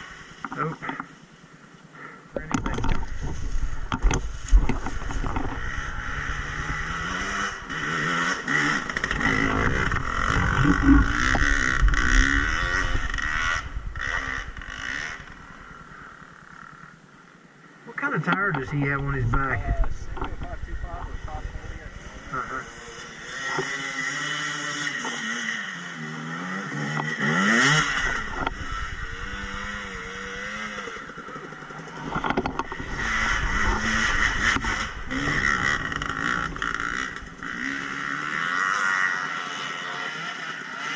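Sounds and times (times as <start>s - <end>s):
heavy rumble and clatter: 2.4s - 15.6s, 18.6s - 22.6s, 27.9s - 37.7s
dirt bike engine revving: 2.4s - 17.3s, 18.0s - 40.9s.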